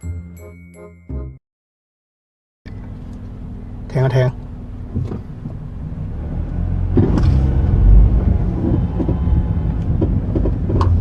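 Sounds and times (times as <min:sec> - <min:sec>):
car engine running: 0:02.7 - 0:11.0.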